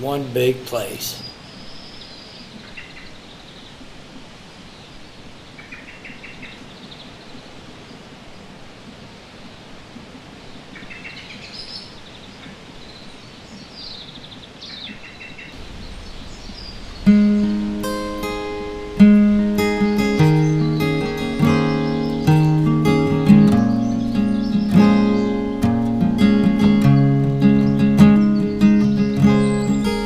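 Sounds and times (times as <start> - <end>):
small birds chirping: 0.0 - 3.8, 10.7 - 30.0
outdoor ambience hiss: 0.0 - 30.0.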